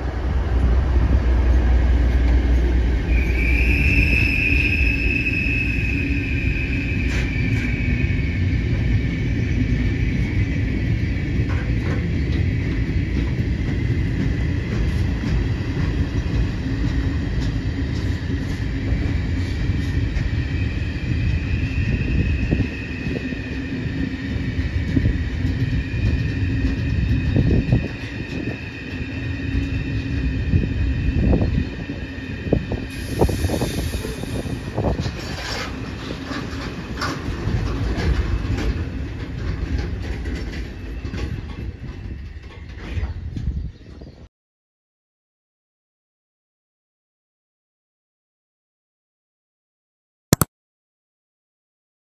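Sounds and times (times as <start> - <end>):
freight train rumbling past: 0.0 - 43.7
high wheel squeal: 3.0 - 9.7
wheels clacking over rail joints: 35.0 - 43.6.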